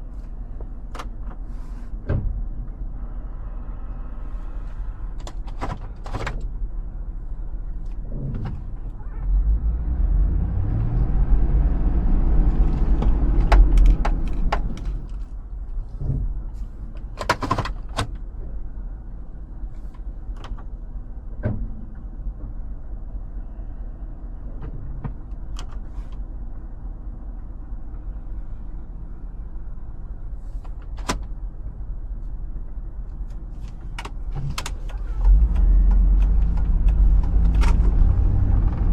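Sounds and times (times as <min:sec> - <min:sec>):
engine revving: 0:09.3 - 0:13.8, 0:35.2 - 0:38.9
sharp clicks and knocks: 0:12.8 - 0:15.4.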